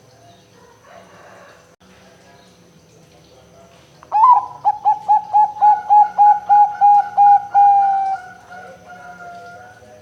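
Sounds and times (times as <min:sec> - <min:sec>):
dove cooing: 0:04.1 - 0:10.0.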